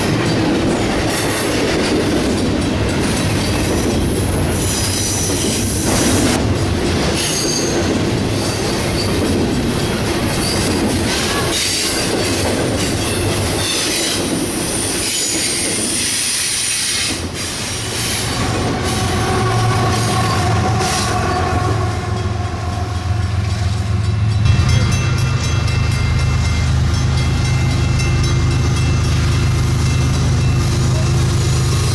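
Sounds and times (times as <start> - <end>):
diesel locomotive drone: 0.0 - 31.9
train rolling on rails: 0.0 - 31.9
wheels squealing: 7.2 - 24.4.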